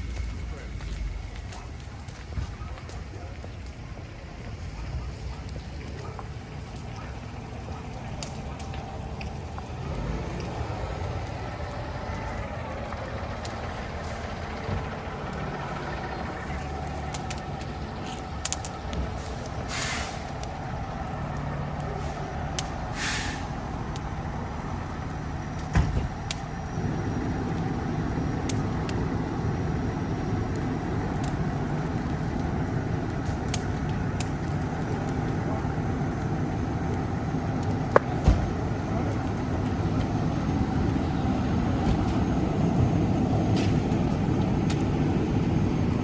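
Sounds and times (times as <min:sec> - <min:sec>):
diesel engine running: 0:00.0 - 0:46.0
air brake hisses: 0:19.7 - 0:20.3, 0:22.9 - 0:23.5.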